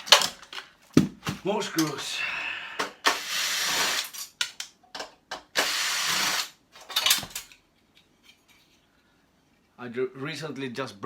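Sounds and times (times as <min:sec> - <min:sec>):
power drill running: 0:03.1 - 0:04.1, 0:05.6 - 0:06.6.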